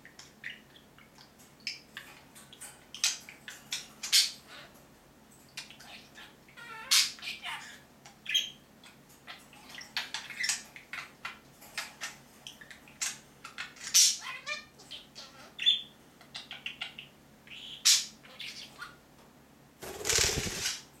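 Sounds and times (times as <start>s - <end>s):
budgerigars chirping and squawking: 0.1s - 4.8s, 5.6s - 19.0s, 19.8s - 20.9s
loud rustling: 19.8s - 20.8s.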